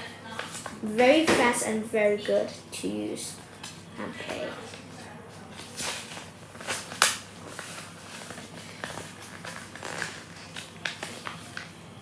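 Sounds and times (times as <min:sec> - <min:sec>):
paper being folded and creased: 0:05.6 - 0:11.7.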